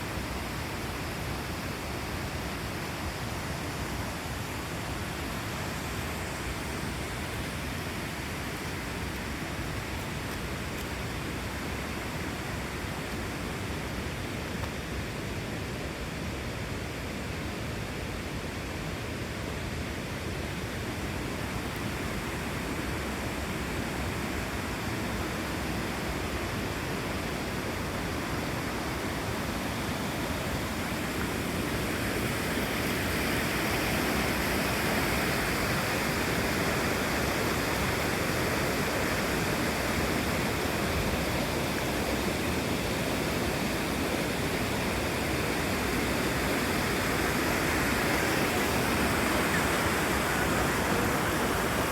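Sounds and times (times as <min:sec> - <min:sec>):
waterfall rushing: 0:20.2 - 0:51.9.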